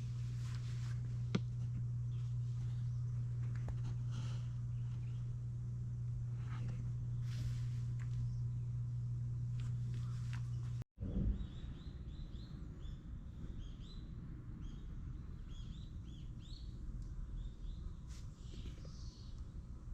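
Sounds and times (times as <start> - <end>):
low background rumble: 0.0 - 19.9
steady low hum: 0.0 - 19.9
small birds chirping: 9.6 - 19.6.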